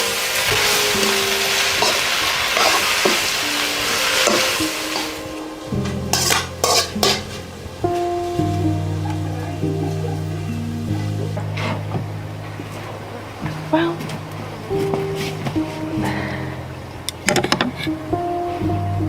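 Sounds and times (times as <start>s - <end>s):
food sizzling in a pan: 0.0s - 10.2s.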